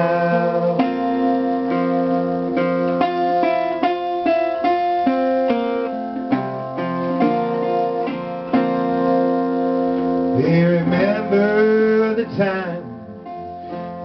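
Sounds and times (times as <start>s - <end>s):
resonator guitar plucked notes: 0.0s - 14.0s.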